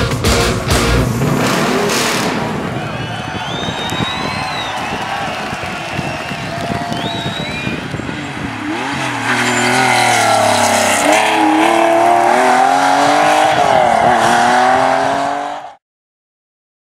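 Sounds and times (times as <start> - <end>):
rally car engine revving: 0.0 - 2.8, 7.3 - 15.8.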